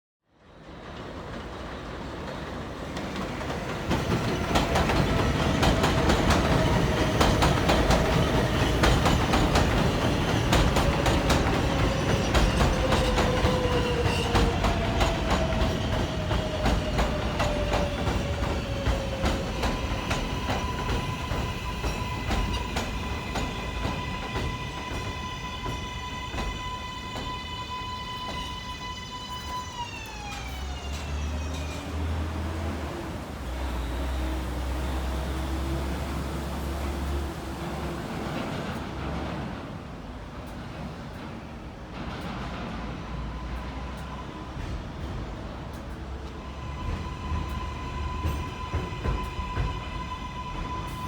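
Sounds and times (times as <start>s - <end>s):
train wheels clacking over rail joints: 0.9s - 29.6s, 37.6s - 51.0s
train motor whine: 4.2s - 37.7s, 46.4s - 51.0s.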